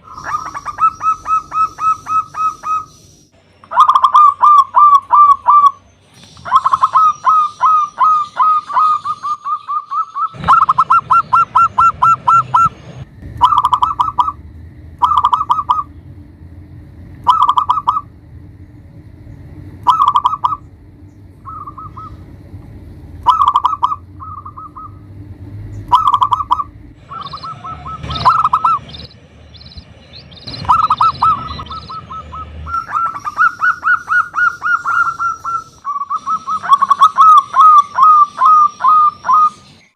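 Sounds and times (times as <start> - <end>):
dove cooing: 0.0 - 2.9, 3.6 - 5.8, 6.4 - 12.8, 13.4 - 14.4, 15.0 - 15.9, 17.2 - 18.2, 19.8 - 20.7, 21.4 - 22.3, 23.2 - 29.1, 30.5 - 39.6.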